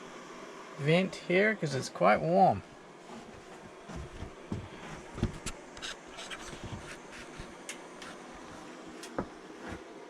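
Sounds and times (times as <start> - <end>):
wood fire crackling in stove: 2.2 - 10.0.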